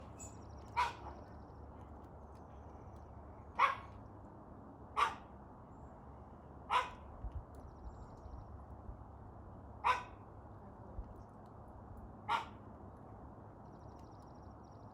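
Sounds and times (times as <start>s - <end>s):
dog barking: 0.8s - 1.2s, 3.6s - 3.9s, 5.0s - 5.3s, 6.7s - 7.0s, 9.8s - 10.2s, 12.3s - 12.6s.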